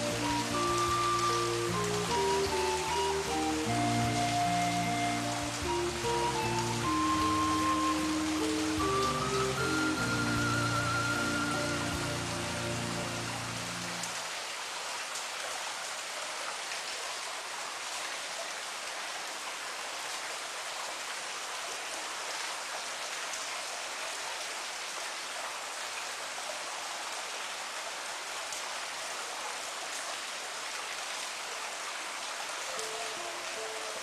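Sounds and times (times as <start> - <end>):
rain drop ticks: 0.0 - 12.1
steady rain falling: 0.0 - 34.0.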